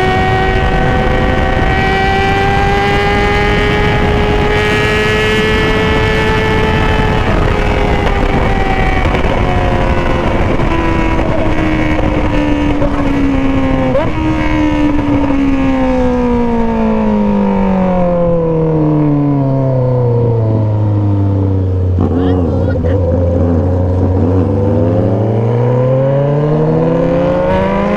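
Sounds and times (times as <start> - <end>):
motorcycle engine slowing: 0.0 - 27.9.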